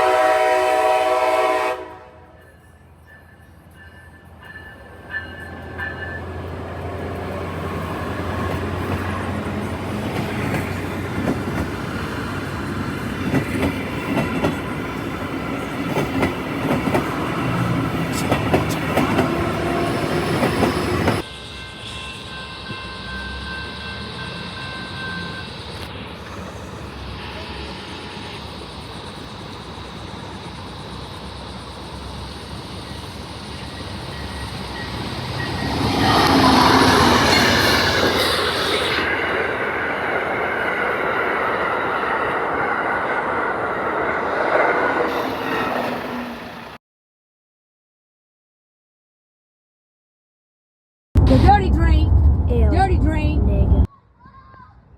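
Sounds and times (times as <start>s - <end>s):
passenger train running on track: 0.0s - 46.8s, 51.2s - 53.9s.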